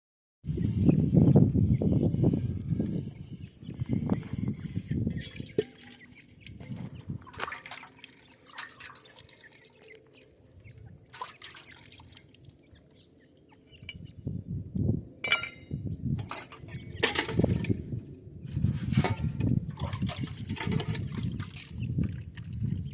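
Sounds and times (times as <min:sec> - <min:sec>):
chicks pecking at water dish: 0:05.1 - 0:10.0, 0:19.7 - 0:22.9
water drips and splashes: 0:05.1 - 0:13.2, 0:19.1 - 0:22.9.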